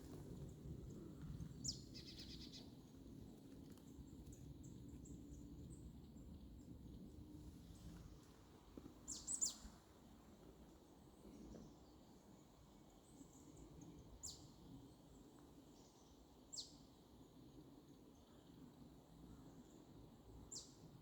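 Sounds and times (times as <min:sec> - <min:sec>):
faint bird chirps: 0:01.6 - 0:02.7.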